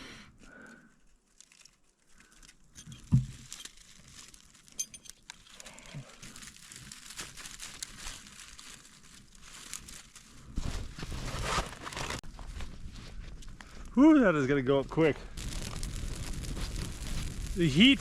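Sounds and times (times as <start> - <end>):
tinder crackling: 0.3 - 18.0
dull thump: 3.1 - 3.4.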